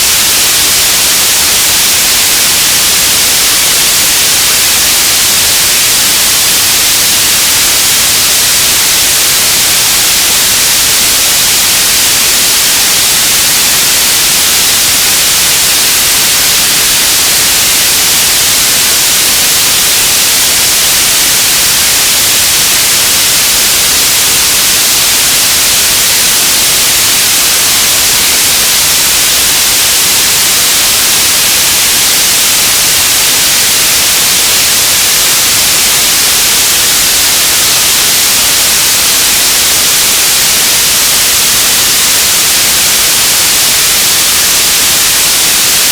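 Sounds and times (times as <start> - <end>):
radio static hiss: 0.0 - 45.9.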